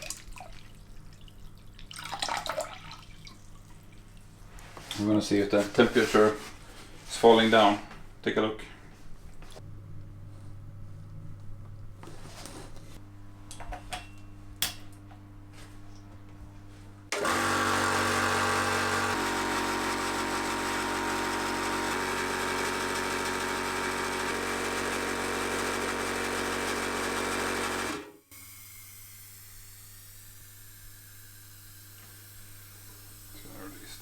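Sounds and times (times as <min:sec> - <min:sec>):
air compressor running: 0:17.1 - 0:34.0.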